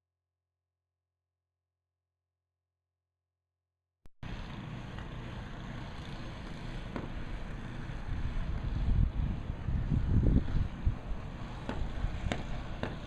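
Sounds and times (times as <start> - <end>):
street traffic rumble: 4.2 - 13.0.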